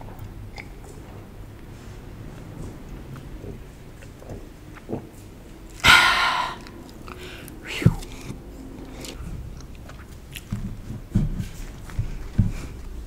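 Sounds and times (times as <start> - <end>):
soft chewing: 2.2 - 5.8, 6.6 - 13.0.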